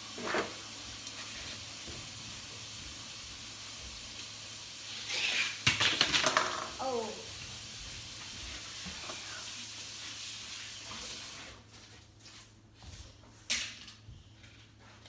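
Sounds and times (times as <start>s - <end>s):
toy car rolling down plastic track: 5.2s - 7.0s.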